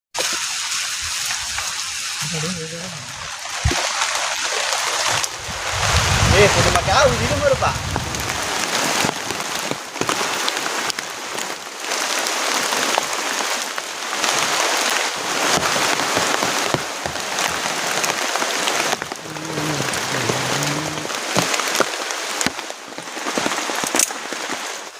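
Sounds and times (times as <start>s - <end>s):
rain pouring: 0.2s - 24.9s.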